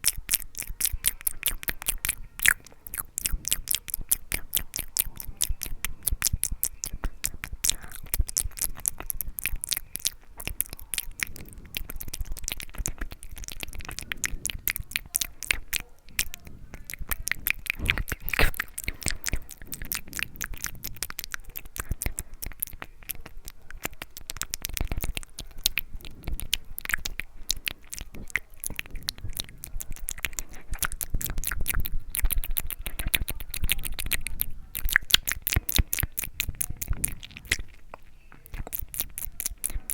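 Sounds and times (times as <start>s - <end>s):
mouth clicks and smacks: 0.0s - 39.9s.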